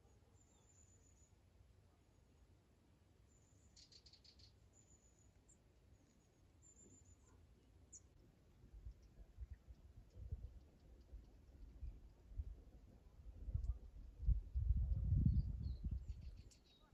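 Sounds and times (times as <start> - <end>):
high thin bird chirps: 3.4 - 5.5, 15.1 - 16.9.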